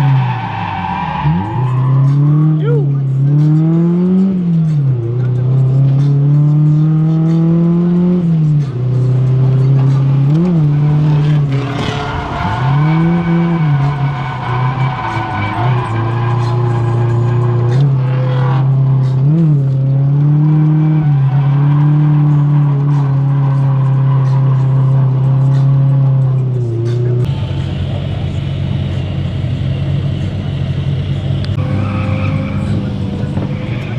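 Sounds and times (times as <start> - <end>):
car engine at high revs: 0.0 - 33.9
tyres squealing: 10.4 - 18.2, 31.6 - 33.9.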